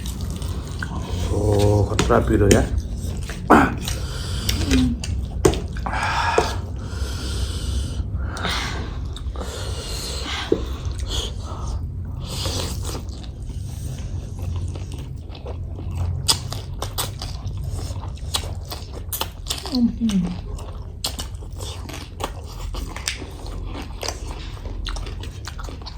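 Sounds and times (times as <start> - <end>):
people chewing: 0.0 - 25.9
long hissing breaths: 5.8 - 12.5.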